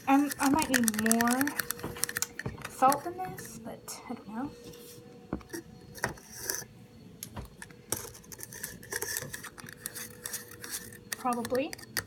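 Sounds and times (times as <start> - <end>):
utensil scraping a cup: 4.6 - 6.7, 7.9 - 12.0.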